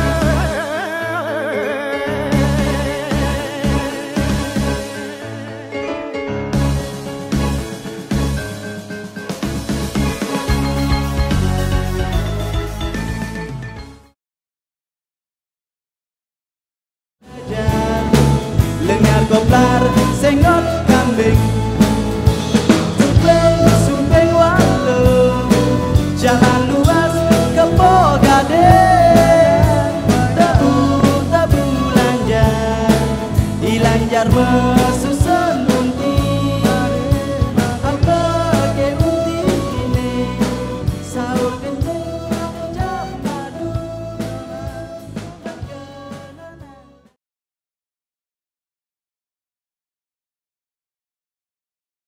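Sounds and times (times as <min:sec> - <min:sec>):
wavering melodic lead: 0:17.5 - 0:45.2
steady drum beat: 0:17.5 - 0:45.8.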